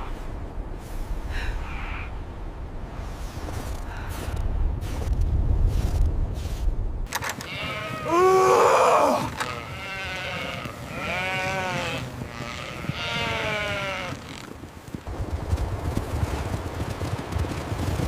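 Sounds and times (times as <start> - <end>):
low rumble: 0.0 - 7.1
sheep bleating: 7.4 - 8.4, 9.1 - 14.4.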